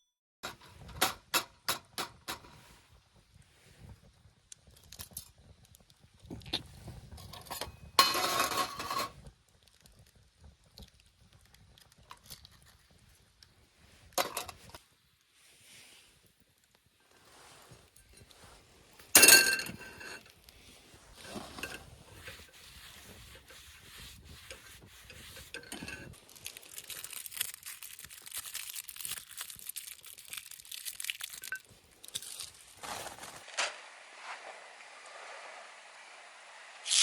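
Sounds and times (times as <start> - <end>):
fine crinkling crackle: 2.6 - 35.4
metal cookware clinks and knocks: 7.2 - 9.1, 19.2 - 20.2.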